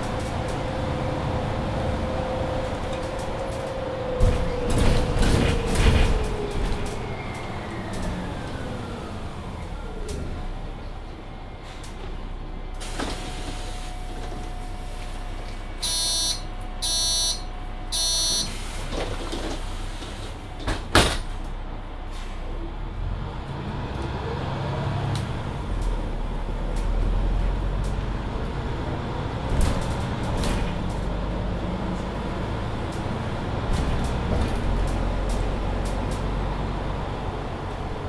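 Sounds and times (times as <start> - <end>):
bus engine rumble: 0.0 - 38.0
door warning beeps: 15.8 - 18.7
bus door thudding shut: 18.0 - 21.4.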